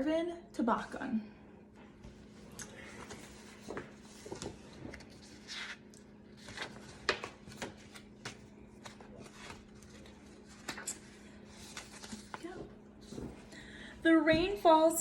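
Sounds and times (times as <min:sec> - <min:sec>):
book pages rustling: 0:01.9 - 0:13.5.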